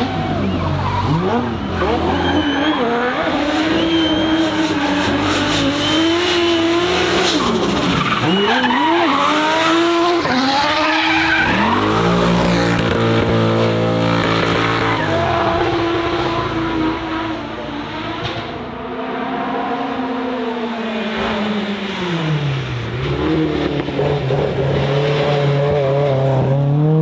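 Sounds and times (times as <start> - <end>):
racing car engine revving: 0.0 - 27.0
tyres squealing: 0.4 - 12.5.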